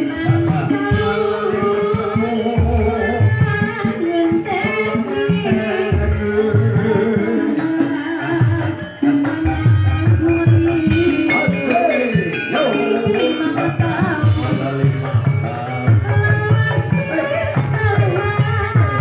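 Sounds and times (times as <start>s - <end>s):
hand-drum strokes: 0.0s - 19.0s
pitched instruments: 8.7s - 16.2s
person singing wavering melody: 9.4s - 16.1s.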